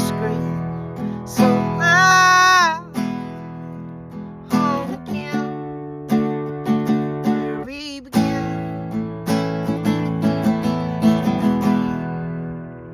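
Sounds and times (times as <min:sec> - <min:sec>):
person singing with vibrato: 0:00.0 - 0:03.6, 0:04.4 - 0:05.8, 0:07.3 - 0:08.9
strummed acoustic guitar: 0:00.0 - 0:12.9.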